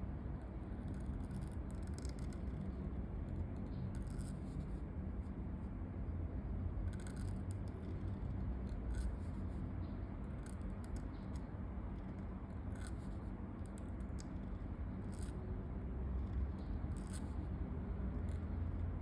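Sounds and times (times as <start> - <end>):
low background rumble: 0.0 - 19.0
pen scratching on paper: 0.6 - 4.8.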